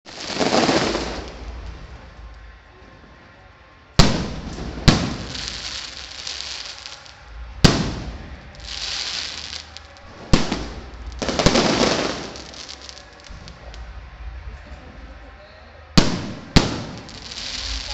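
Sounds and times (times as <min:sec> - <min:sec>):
fireworks crackling and hissing: 0:00.0 - 0:14.4, 0:16.0 - 0:17.9
fireworks banging: 0:00.1 - 0:02.5, 0:04.0 - 0:13.9, 0:16.0 - 0:17.9.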